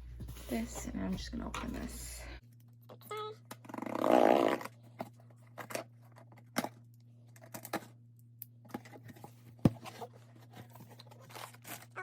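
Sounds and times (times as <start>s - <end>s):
cardboard and packing rustling: 8.7s - 12.0s.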